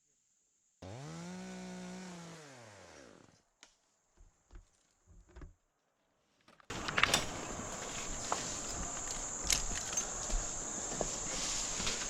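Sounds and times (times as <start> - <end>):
chainsaw engine winding down: 0.8 - 3.3.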